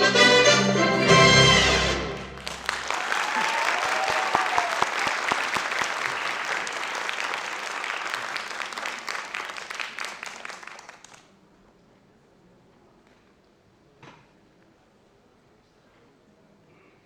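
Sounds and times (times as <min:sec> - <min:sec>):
audience applauding: 0:02.0 - 0:11.3.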